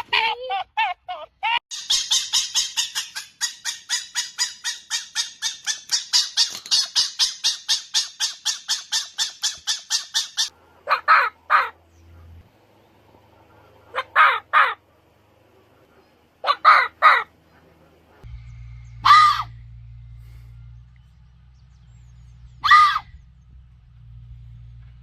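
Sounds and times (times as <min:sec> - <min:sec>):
fox low harsh calls: 0:10.8 - 0:11.8, 0:13.4 - 0:14.8, 0:16.4 - 0:17.4, 0:19.0 - 0:19.6, 0:22.6 - 0:23.2
fox giving short high calls: 0:19.0 - 0:19.5, 0:22.6 - 0:23.1.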